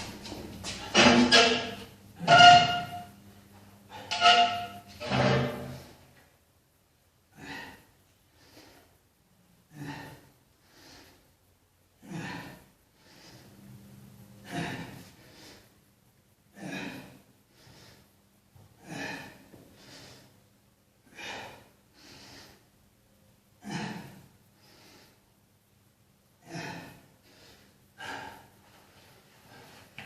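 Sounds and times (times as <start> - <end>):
man breathing hard: 7.3 - 9.0, 9.7 - 11.4, 12.0 - 13.7, 18.8 - 20.4, 21.0 - 22.8, 26.4 - 30.0.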